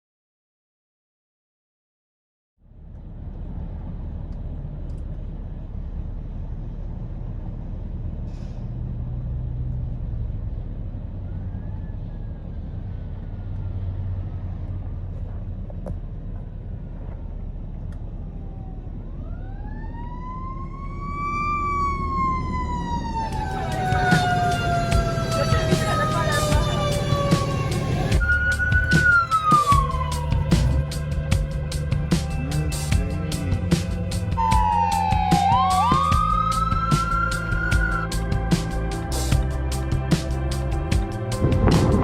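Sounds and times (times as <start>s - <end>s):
road traffic rumble: 2.6s - 42.0s
fire engine siren wailing: 10.9s - 15.2s, 16.8s - 31.2s, 34.3s - 38.2s
harsh siren blare: 11.1s - 14.5s, 18.2s - 31.0s, 34.3s - 38.2s, 41.4s - 42.0s.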